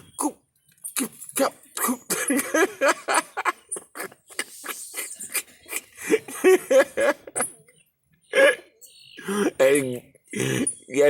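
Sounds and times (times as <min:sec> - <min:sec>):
sharp little noises: 0:00.0 - 0:11.0
birds squabbling calls: 0:03.1 - 0:07.6, 0:08.2 - 0:11.0.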